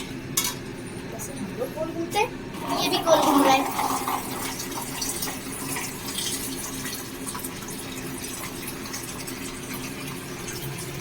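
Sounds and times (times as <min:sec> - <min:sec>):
gravy sizzling in a pan: 0:02.8 - 0:11.0.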